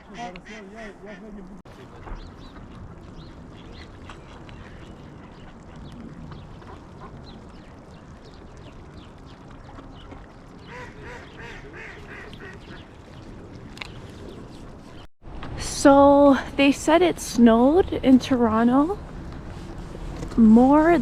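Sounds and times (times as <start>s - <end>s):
ducks quacking: 0.0s - 2.2s, 10.7s - 12.9s.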